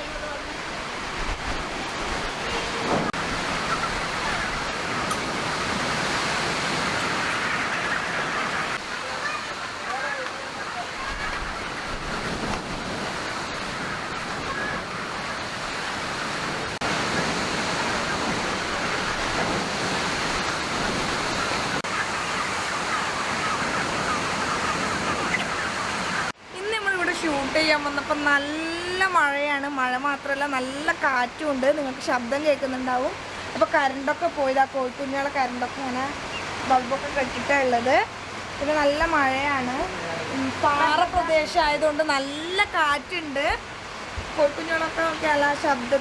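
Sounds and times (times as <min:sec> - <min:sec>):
heavy rain: 0:00.0 - 0:22.8
strong wind: 0:00.0 - 0:26.4.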